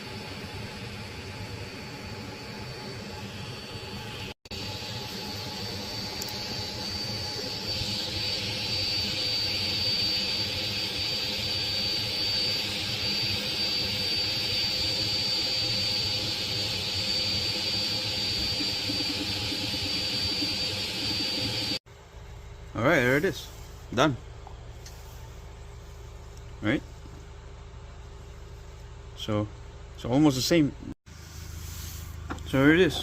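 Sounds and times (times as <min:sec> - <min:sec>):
high-pitched whine: 0:00.0 - 0:21.8
printer fan hiss: 0:00.0 - 0:21.8.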